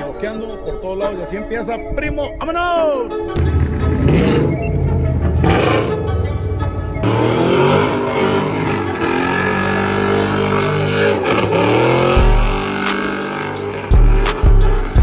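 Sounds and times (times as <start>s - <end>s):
vehicle engine revving: 3.4s - 15.0s.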